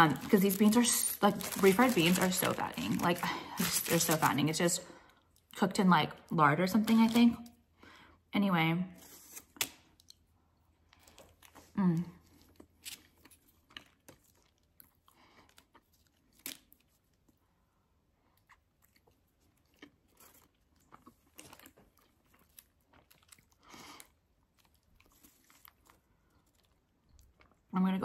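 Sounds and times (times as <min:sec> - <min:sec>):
person chewing tortilla: 0:09.2 - 0:27.7.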